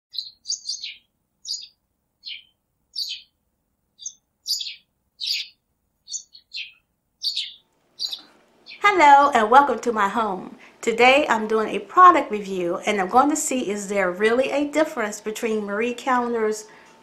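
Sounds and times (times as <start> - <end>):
bird chirping: 0.1 - 9.0.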